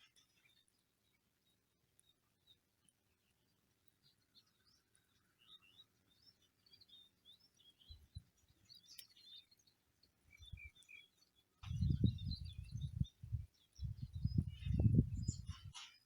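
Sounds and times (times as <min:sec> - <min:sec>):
small birds chirping: 0:00.0 - 0:16.0
wind buffeting microphone: 0:11.6 - 0:15.8.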